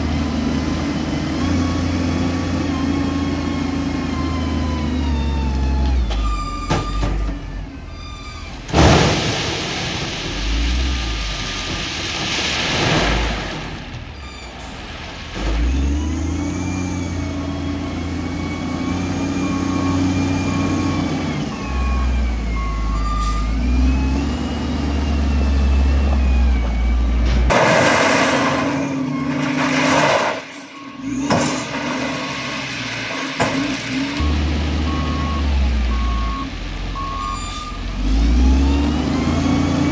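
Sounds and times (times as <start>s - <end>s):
heavy diesel machinery engine: 0.0s - 39.9s.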